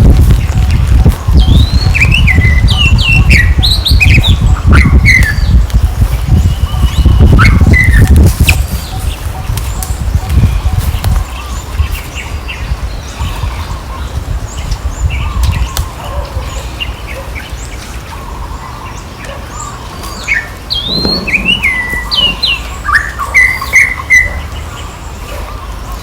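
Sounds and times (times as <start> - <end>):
high chirping and squeaking calls: 18.1 - 25.7.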